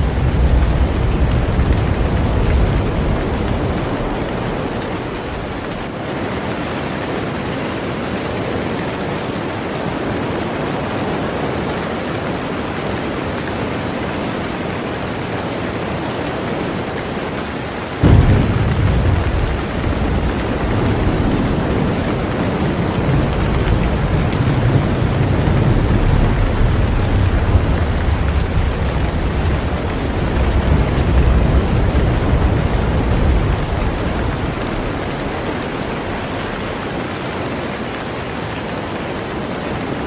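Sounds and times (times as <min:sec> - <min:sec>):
deep rolling rumble: 0:00.0 - 0:05.9, 0:18.0 - 0:36.8
heavy rain on a boat: 0:00.0 - 0:40.0.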